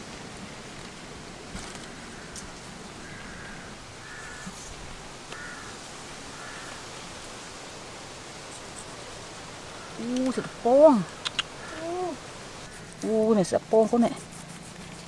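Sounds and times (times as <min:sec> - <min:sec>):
steady outdoor hiss: 0:00.0 - 0:15.0
bird calling: 0:01.8 - 0:06.9, 0:09.5 - 0:13.4
faint ticks: 0:11.2 - 0:11.8.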